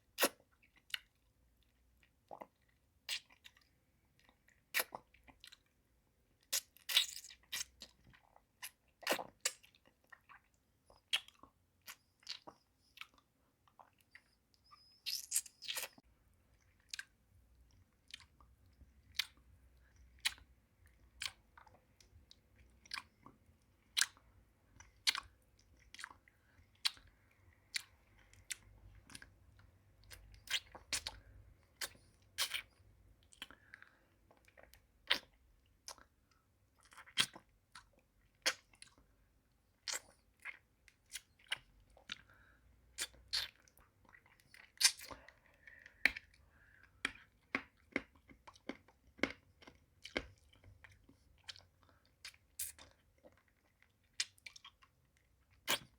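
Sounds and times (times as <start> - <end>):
soft sucking: 6.4 - 16.0
wet clicks and crunches of candy: 39.8 - 55.9.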